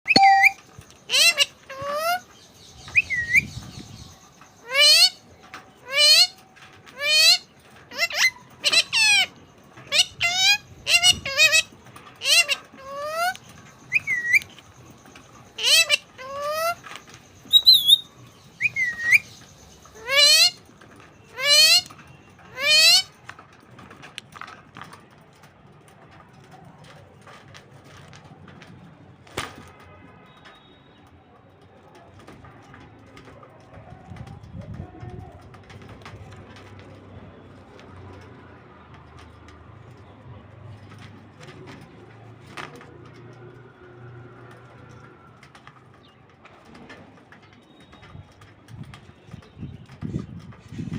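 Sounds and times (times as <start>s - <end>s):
parrot whistle-like chirp: 0.1s - 0.6s, 17.5s - 19.3s.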